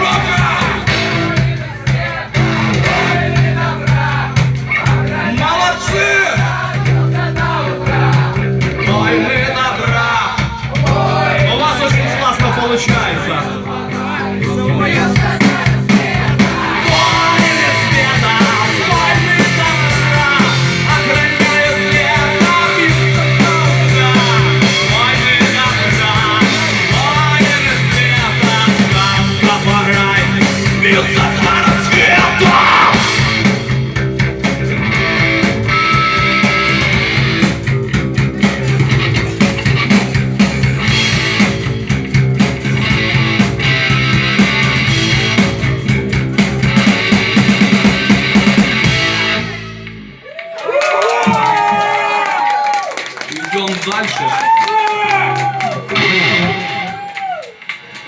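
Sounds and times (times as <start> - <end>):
rock band playing: 0.0 - 58.0
person singing: 10.7 - 33.5.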